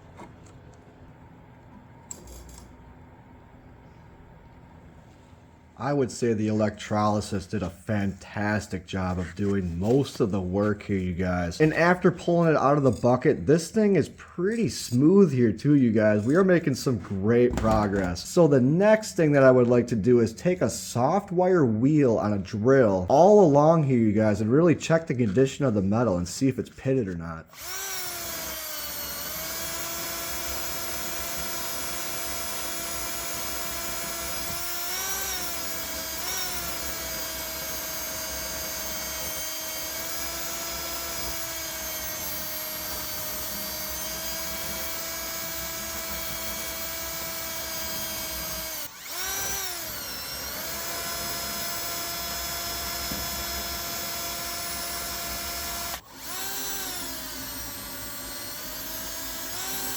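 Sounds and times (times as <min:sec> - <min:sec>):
drill wire wheel brushing metal: 0:27.6 - 0:59.9.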